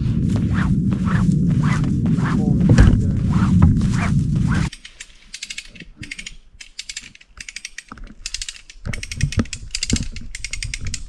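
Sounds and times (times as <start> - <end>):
ratchet pawl clicks: 4.7 - 11.0.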